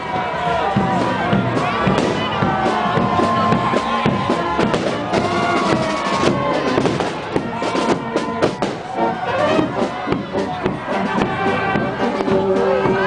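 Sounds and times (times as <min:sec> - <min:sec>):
marching band with drums: 0:00.0 - 0:13.0
firecrackers banging: 0:00.8 - 0:09.0.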